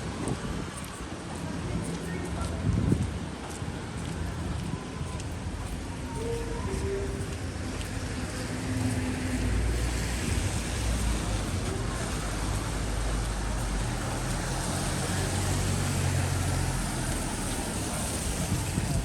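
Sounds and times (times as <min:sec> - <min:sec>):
traffic on wet street: 0:00.0 - 0:19.0
vehicle engine humming: 0:05.3 - 0:19.0.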